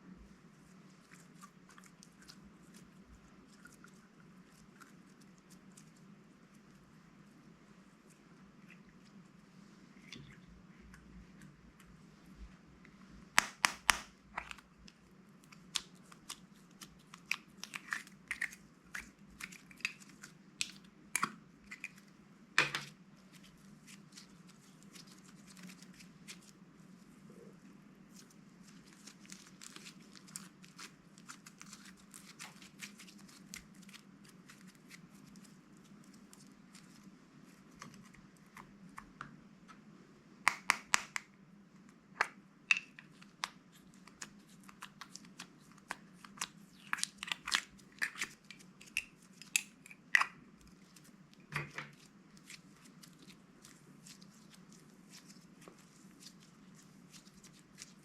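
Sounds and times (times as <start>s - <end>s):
faint low hum: 0.0s - 58.0s
sharp snaps and crackles: 13.3s - 22.0s, 40.5s - 41.3s, 41.9s - 53.4s.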